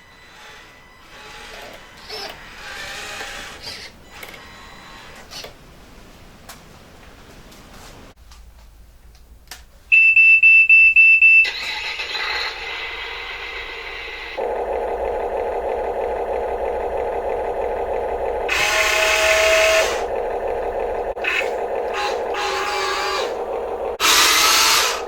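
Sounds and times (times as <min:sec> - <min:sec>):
small electric motor buzzing: 0:18.5 - 0:20.1, 0:24.0 - 0:25.0.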